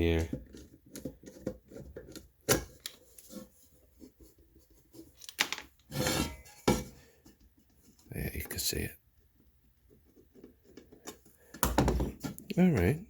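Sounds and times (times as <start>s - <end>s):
pan handle scraping: 5.9s - 7.1s.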